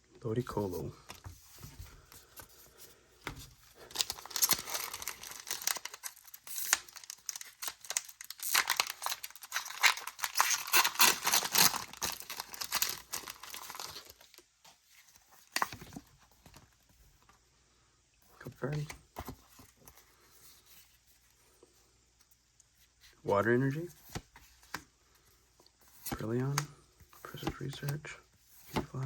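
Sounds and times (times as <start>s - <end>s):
handling of packaging: 1.0s - 16.8s
foil wrapper tearing and crinkling: 3.8s - 14.4s.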